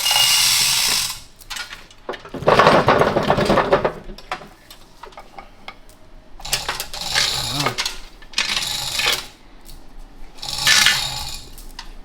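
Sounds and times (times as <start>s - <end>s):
steel parts clattering: 0.0s - 5.6s, 6.4s - 9.8s, 10.4s - 12.0s.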